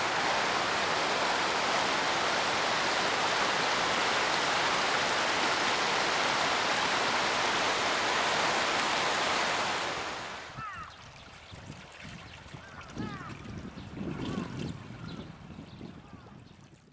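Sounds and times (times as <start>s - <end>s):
mountain stream rushing: 0.0s - 10.6s.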